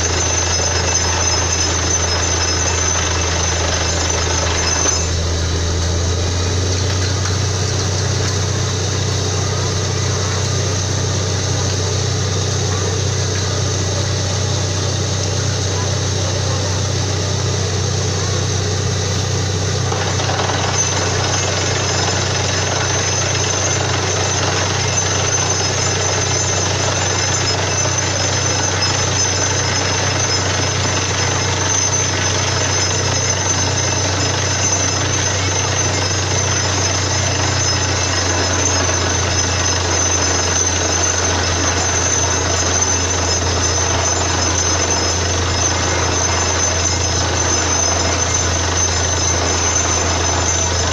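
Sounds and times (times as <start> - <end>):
drilling rig mechanical din: 0.0 - 50.9
harsh mechanical noise: 0.0 - 50.9.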